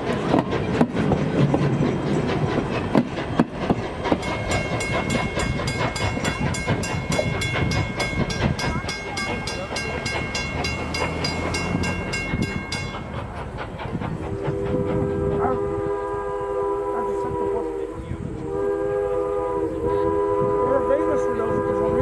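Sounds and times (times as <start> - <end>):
train rumble: 0.0 - 22.0
locomotive bell ringing: 4.1 - 14.2.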